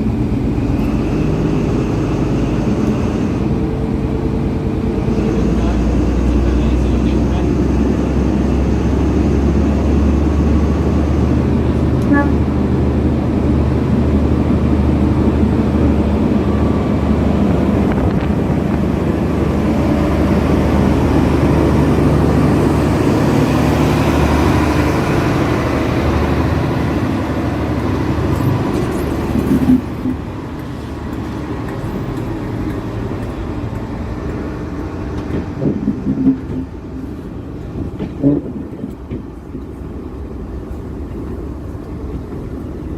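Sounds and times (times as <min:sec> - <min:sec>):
diesel train engine running: 0:00.0 - 0:42.9
quiet rumbling: 0:15.3 - 0:42.9.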